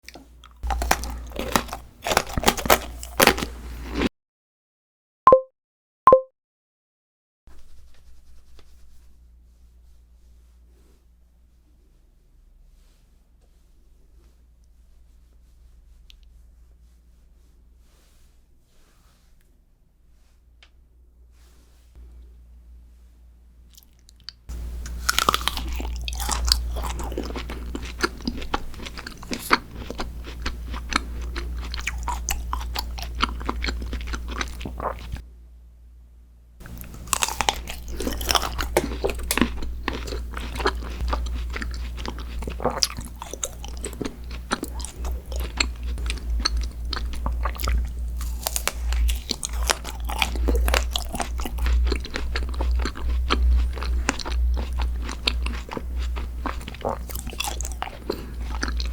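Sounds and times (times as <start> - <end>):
person chewing crunchy food: 0.0 - 4.1, 23.7 - 35.2, 36.6 - 58.9.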